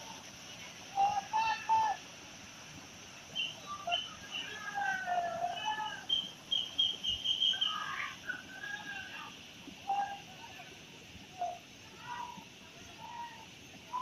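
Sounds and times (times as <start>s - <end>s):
river rapids rushing: 0.0s - 14.0s
birds chirping and calling: 3.4s - 5.0s, 5.6s - 8.5s.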